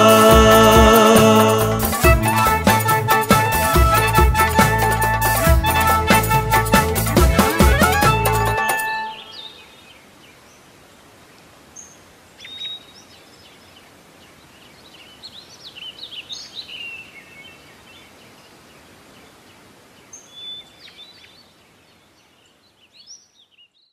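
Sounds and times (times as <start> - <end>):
faint steady hiss: 0.0 - 23.9
birds chirping and singing: 8.3 - 9.8.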